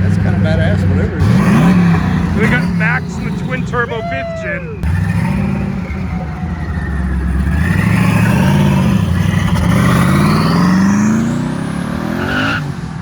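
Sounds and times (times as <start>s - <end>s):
car engine accelerating: 0.0s - 13.0s
high turbo whistle: 3.0s - 8.9s.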